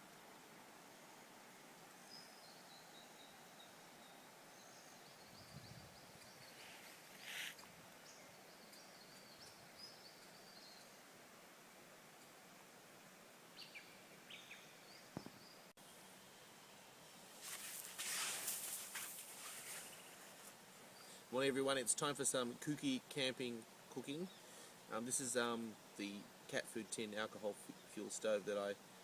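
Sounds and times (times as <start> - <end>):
faint birds chirping: 0.0 - 29.0
brief rustle: 6.4 - 7.7, 17.4 - 20.6.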